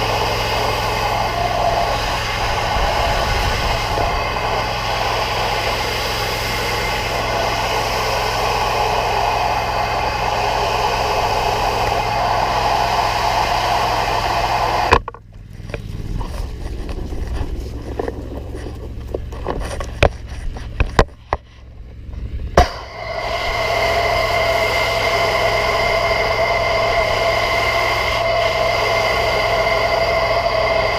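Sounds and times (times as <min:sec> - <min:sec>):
pressure washer spray hissing: 0:00.0 - 0:15.0, 0:22.6 - 0:30.9
engine humming: 0:00.0 - 0:30.9
sharp clicks and knocks: 0:14.9 - 0:21.6.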